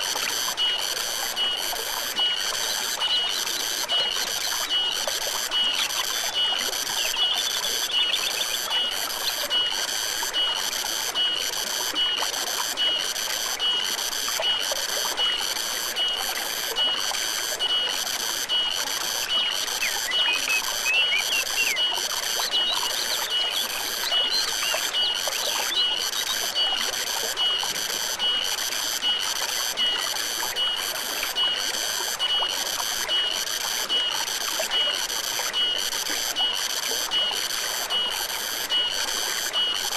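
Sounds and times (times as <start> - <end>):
stream trickling: 0.0 - 39.9
bird-like chirps: 7.0 - 9.4, 19.4 - 26.4.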